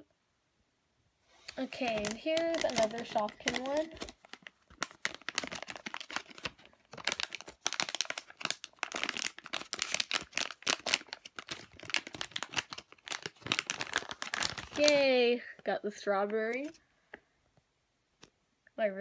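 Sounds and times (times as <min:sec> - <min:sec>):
plastic packaging crinkling and tearing: 0:01.4 - 0:15.2.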